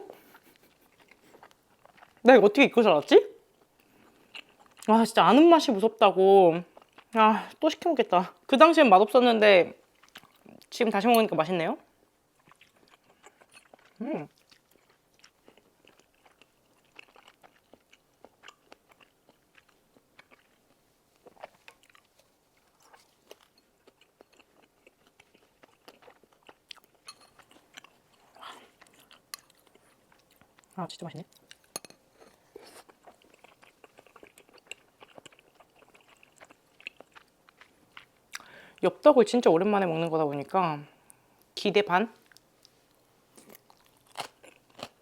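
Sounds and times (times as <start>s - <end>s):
chewing and mouth smacks: 0.1s - 2.2s, 12.4s - 38.5s
person humming: 14.0s - 14.3s.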